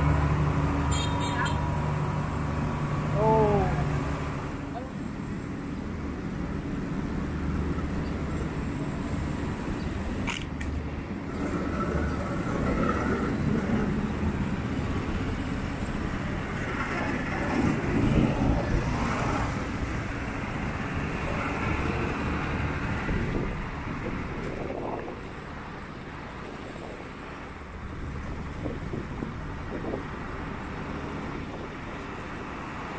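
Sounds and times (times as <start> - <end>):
passing traffic rumble: 0.0 - 32.9
sharp click: 10.2 - 10.8.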